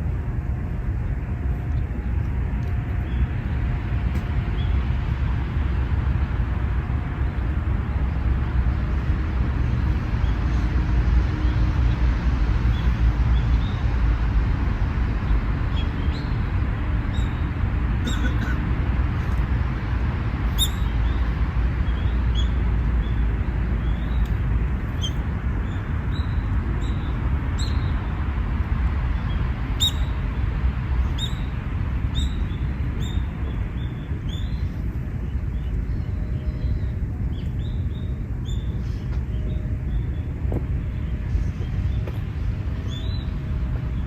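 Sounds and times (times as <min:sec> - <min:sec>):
steady low rumble: 0:00.0 - 0:44.0
small birds chirping: 0:20.5 - 0:23.2, 0:23.8 - 0:28.2, 0:28.9 - 0:44.0.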